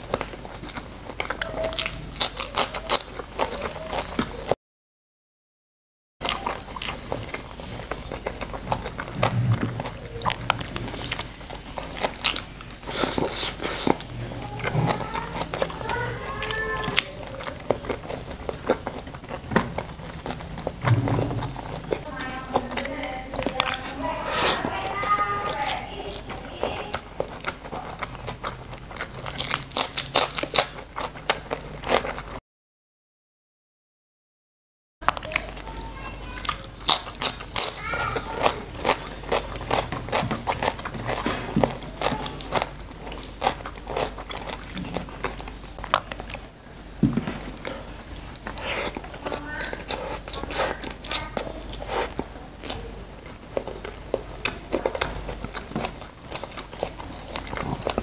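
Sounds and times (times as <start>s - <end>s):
person chewing food: 0.0s - 4.6s, 6.2s - 32.4s, 35.0s - 58.0s
wet lip smacking: 23.4s - 24.7s.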